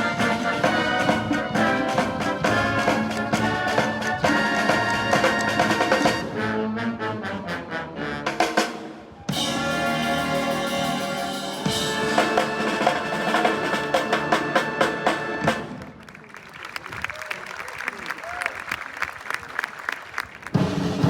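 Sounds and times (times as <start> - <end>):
brass band playing: 0.0 - 16.0, 20.5 - 21.0
rapid drum strokes: 8.7 - 15.6
sustained brass chord: 9.4 - 15.5.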